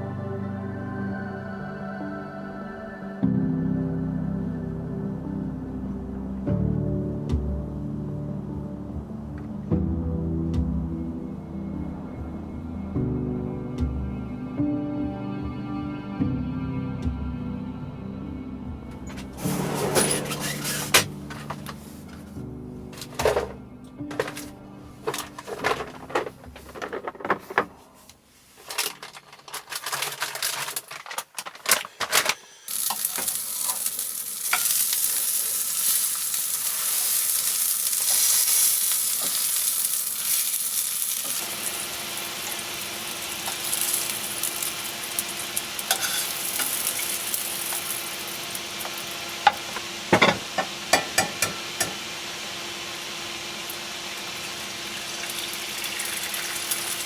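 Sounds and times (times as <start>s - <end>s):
pan and utensil clicks and knocks: 23.0s - 27.7s, 45.9s - 47.8s, 48.8s - 52.0s
food sizzling in a frying pan: 32.7s - 57.0s.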